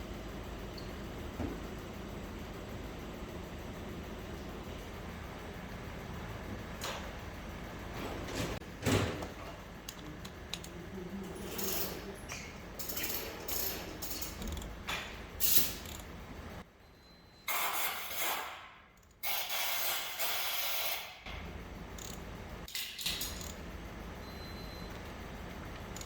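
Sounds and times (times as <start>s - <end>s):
mechanical ratchet clicking: 12.8s - 14.8s, 15.4s - 16.1s, 19.0s - 21.0s, 21.9s - 23.6s.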